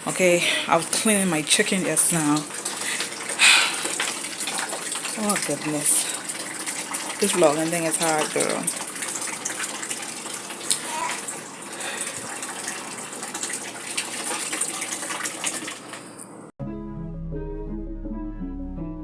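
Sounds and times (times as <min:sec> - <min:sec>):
tap water running: 0:00.0 - 0:16.5
melodic music: 0:16.6 - 0:19.0.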